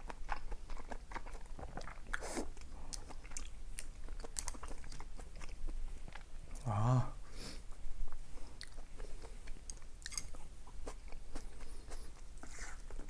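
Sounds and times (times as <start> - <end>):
food crunches: 0.0 - 6.3, 9.4 - 11.5
chewing and biting: 0.0 - 6.6, 8.1 - 13.0.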